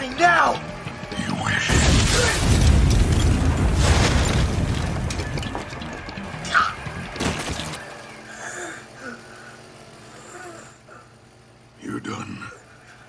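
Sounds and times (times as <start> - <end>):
booming crashing impacts: 1.7 - 6.2.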